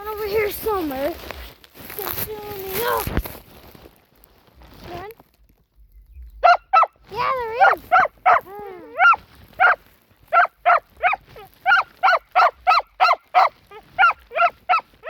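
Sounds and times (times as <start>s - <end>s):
dog barking rapidly: 6.4s - 15.0s
dog whining: 7.6s - 15.0s.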